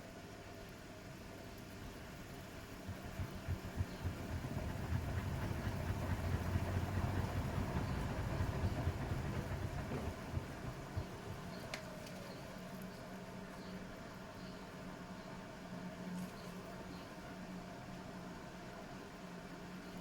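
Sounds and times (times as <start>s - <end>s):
washing machine drum rumbling: 2.8s - 11.8s.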